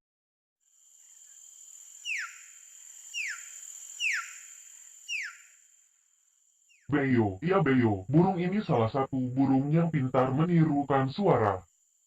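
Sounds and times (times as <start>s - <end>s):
bird whistling: 4.0s - 4.4s, 5.1s - 5.4s.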